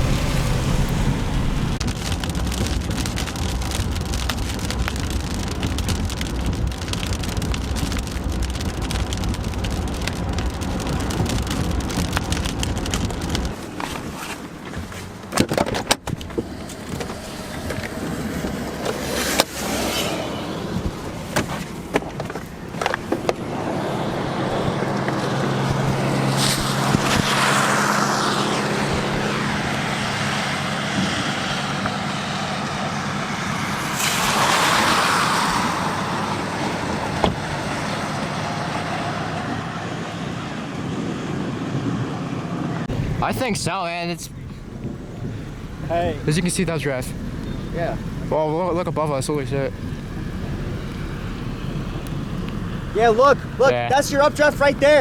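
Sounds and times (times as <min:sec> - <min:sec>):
tyre and road noise: 0:00.0 - 0:55.0
steady low hum: 0:42.9 - 0:55.0.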